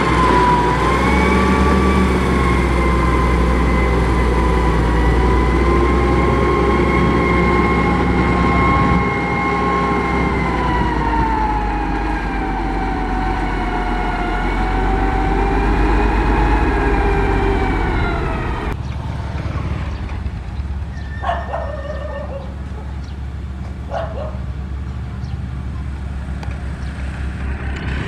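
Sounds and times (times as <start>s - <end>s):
diesel engine with high whine: 0.0s - 28.0s
quieter engine running: 0.0s - 28.0s
dog barking: 21.2s - 23.0s, 23.9s - 24.5s.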